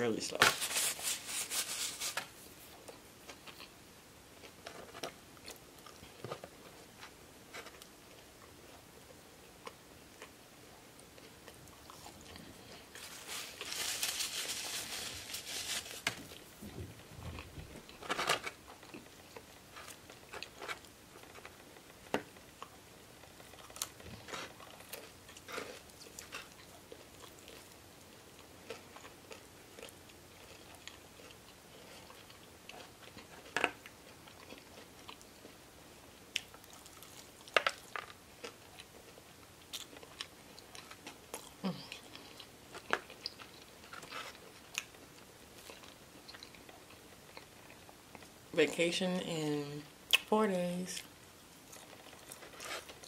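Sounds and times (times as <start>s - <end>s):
paper napkin rustling: 0.3s - 2.7s, 13.0s - 16.6s
chewing fried chicken: 2.5s - 48.4s, 51.0s - 53.0s.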